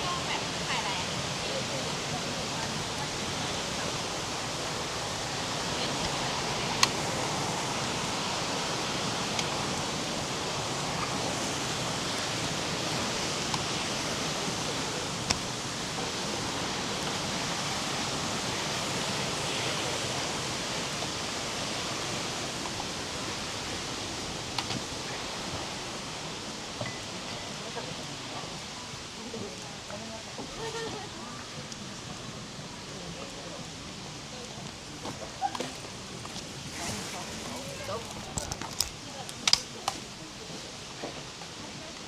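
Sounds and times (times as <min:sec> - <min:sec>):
water flowing: 0:00.0 - 0:42.0
sharp clicks: 0:38.2 - 0:40.0.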